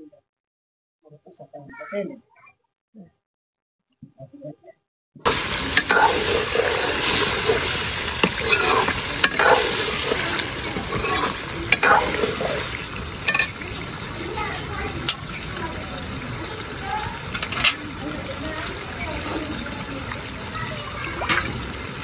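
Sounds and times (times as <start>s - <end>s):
curry sizzling in a pot: 5.2s - 22.0s
metal ladle scraping a pot: 5.3s - 13.9s.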